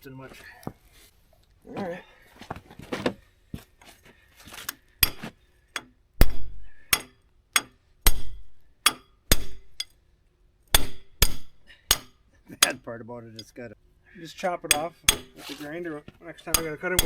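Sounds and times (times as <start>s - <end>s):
hammer striking steel: 5.0s - 9.9s, 10.7s - 12.8s, 14.7s - 15.6s, 16.5s - 17.0s.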